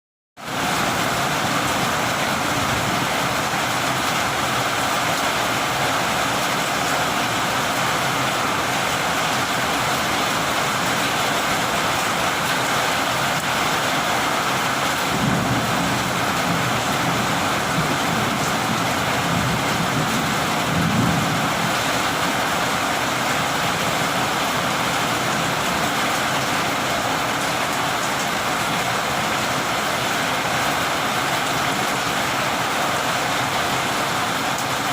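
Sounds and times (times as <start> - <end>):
heavy rain falling: 0.4 - 34.9
thunder rumbling: 14.9 - 22.6.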